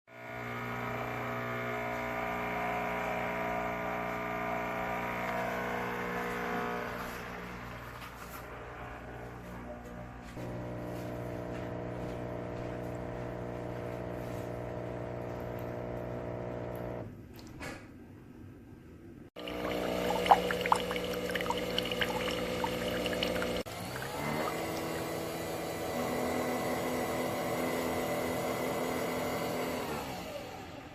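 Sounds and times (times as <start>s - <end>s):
coffee machine humming: 0.2s - 17.1s, 19.4s - 28.8s
liquid pouring: 19.4s - 25.2s
small clicks and drips: 19.4s - 25.2s.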